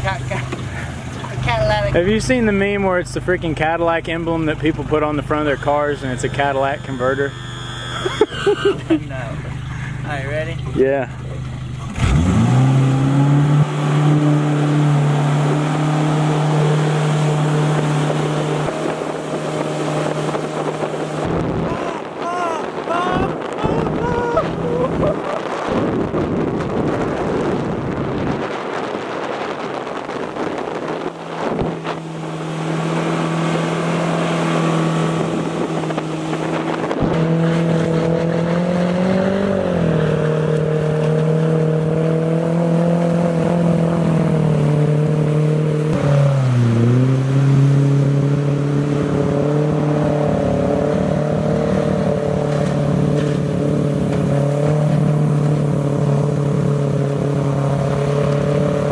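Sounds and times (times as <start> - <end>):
outboard motor drone: 0.0 - 58.9
wind on microphone: 13.4 - 58.9.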